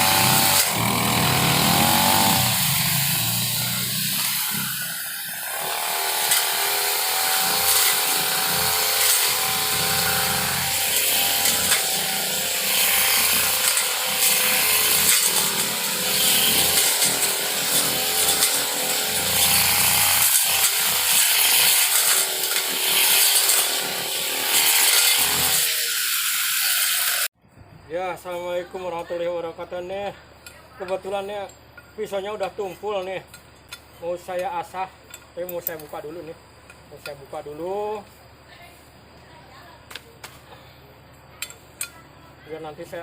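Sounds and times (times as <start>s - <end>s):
brush cutter engine running: 0.0s - 27.3s.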